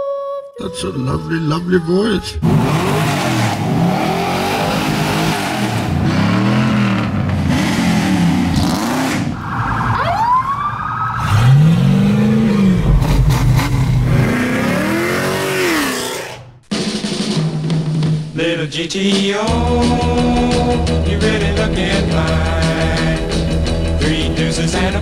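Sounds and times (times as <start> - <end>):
car engines revving: 2.3 - 16.6.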